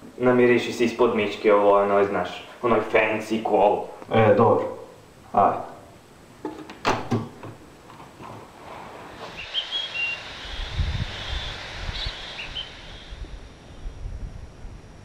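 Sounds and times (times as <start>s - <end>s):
wind rumble on microphone: 9.2s - 15.0s
small bird chirping: 9.3s - 13.2s.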